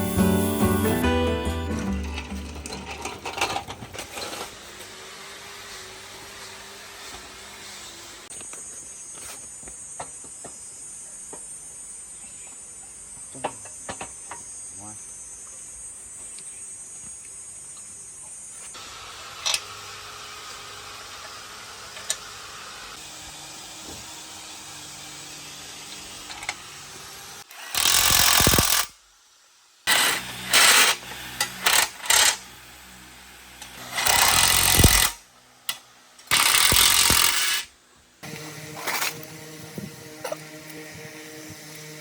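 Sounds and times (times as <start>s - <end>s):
power tool running: 0.0s - 3.4s, 18.8s - 28.9s, 29.9s - 42.0s
workshop hum: 0.0s - 8.3s, 29.9s - 42.0s.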